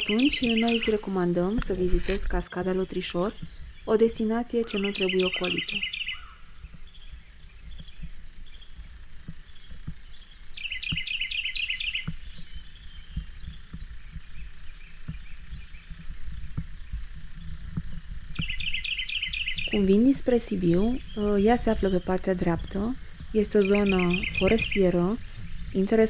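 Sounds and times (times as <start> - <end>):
songbird trilling: 0.0 - 26.0
steady low rumble: 12.1 - 26.0.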